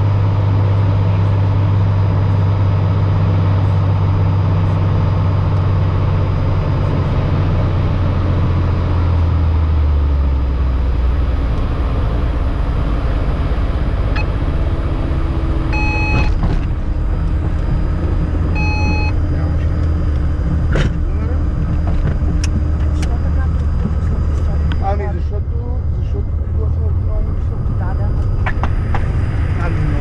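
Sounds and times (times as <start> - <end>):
airliner rumble on runway: 0.0 - 30.0
short electronic tone: 15.7 - 16.4.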